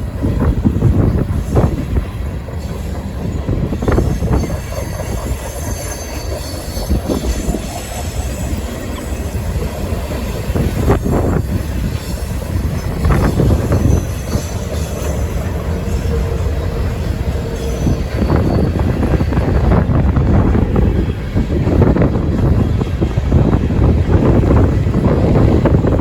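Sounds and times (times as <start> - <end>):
train cars rumbling past: 0.0 - 26.0
faint high wheel squeal: 2.6 - 19.8.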